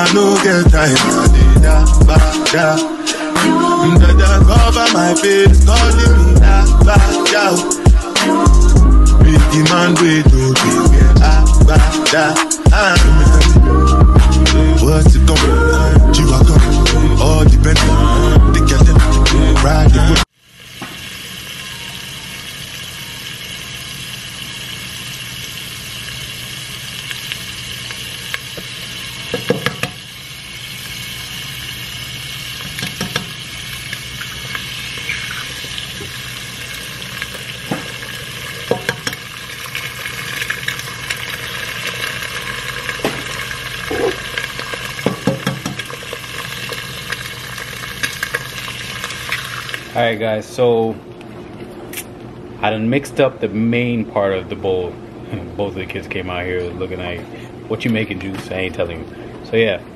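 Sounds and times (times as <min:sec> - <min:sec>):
food sizzling in a pan: 0:20.2 - 0:50.1
utensil knocking cookware: 0:38.7 - 0:39.2, 0:45.0 - 0:45.8.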